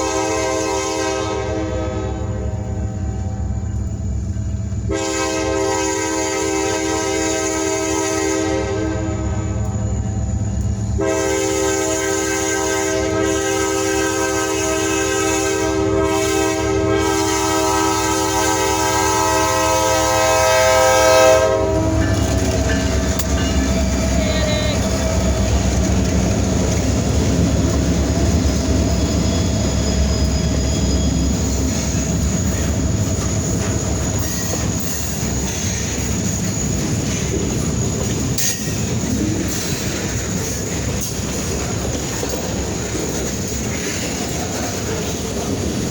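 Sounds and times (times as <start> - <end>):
locomotive air horn: 0.0 - 3.0, 4.8 - 9.7, 11.0 - 23.3
train rumble and wheel clatter: 0.0 - 45.9.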